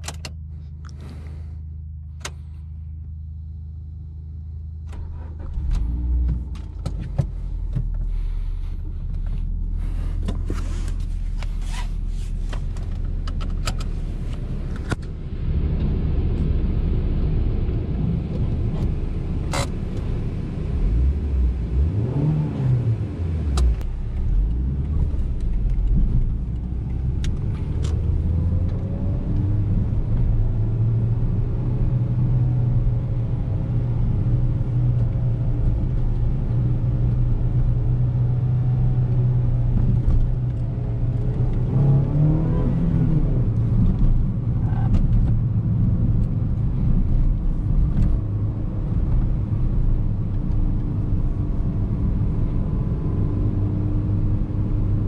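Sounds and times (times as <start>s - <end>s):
car engine driving: 0.0s - 55.0s.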